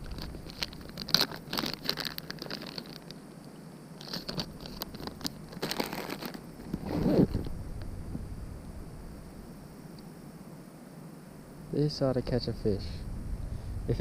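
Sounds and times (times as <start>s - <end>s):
plastic packaging crinkling: 0.0s - 3.2s, 4.0s - 7.5s
sharp crackles: 0.0s - 8.7s.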